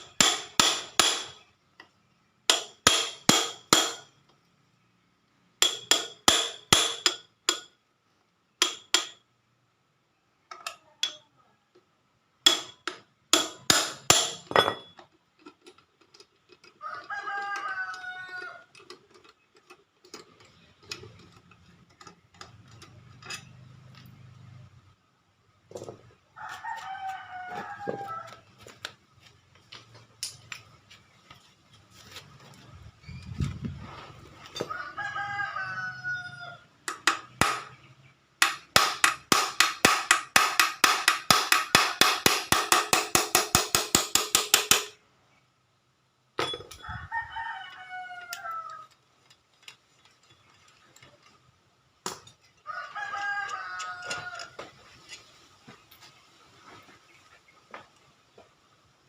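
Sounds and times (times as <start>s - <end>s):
rooster crowing: 16.8s - 18.7s, 26.4s - 28.7s, 34.5s - 36.7s, 46.8s - 49.0s, 52.6s - 54.7s.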